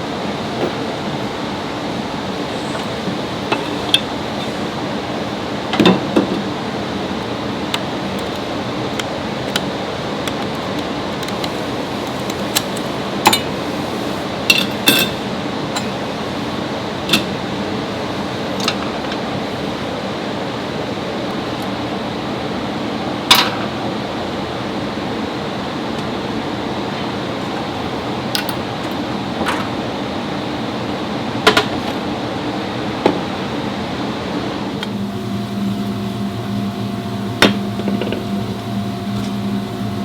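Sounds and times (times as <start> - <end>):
mechanical hum: 0.0 - 40.0
hand tools clinking on metal: 14.5 - 16.0.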